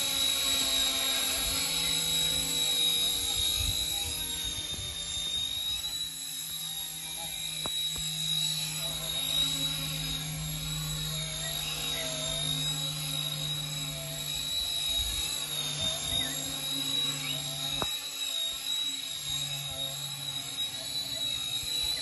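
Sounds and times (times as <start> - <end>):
high-pitched motor whine: 0.0 - 22.0
rotor hum: 0.0 - 22.0.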